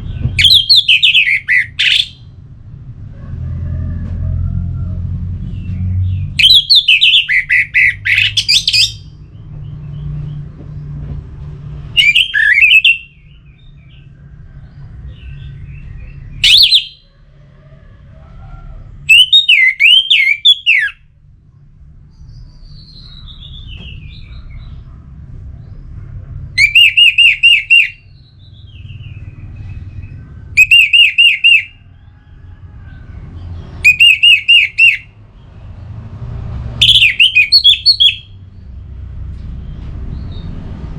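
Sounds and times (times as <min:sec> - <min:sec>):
thrush singing whistled phrases: 0:00.4 - 0:02.2, 0:06.4 - 0:09.1, 0:12.0 - 0:13.3, 0:16.3 - 0:17.0, 0:19.1 - 0:21.0, 0:26.6 - 0:28.1, 0:30.6 - 0:31.8, 0:33.8 - 0:35.2, 0:36.8 - 0:38.4.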